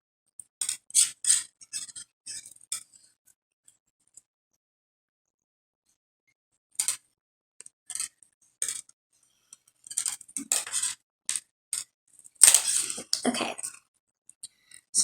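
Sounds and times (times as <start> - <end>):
plastic beads clicking and rattling: 12.4 - 13.2.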